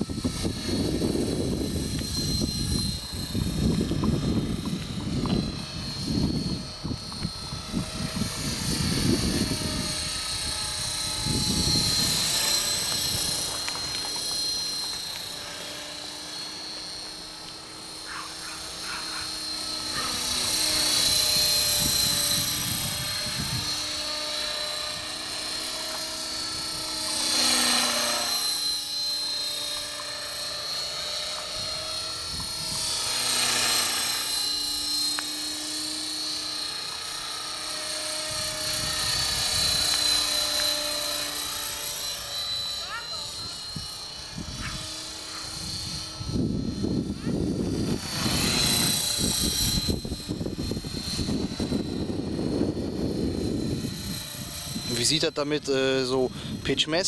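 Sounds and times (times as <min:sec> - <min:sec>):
wind rumble on microphone: 0:00.0 - 0:14.0, 0:21.1 - 0:25.2, 0:38.2 - 0:40.2, 0:43.4 - 0:55.1
rc helicopter motor whine: 0:00.0 - 0:57.0.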